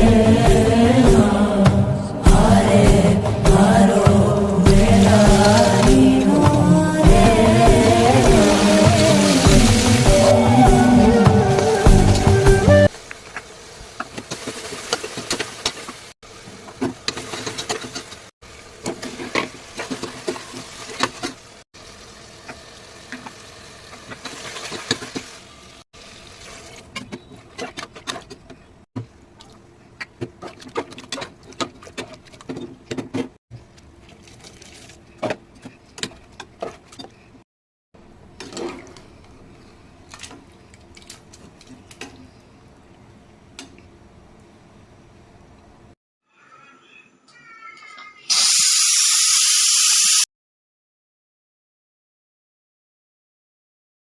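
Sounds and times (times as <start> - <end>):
sizzling hiss: 48.3 - 50.2.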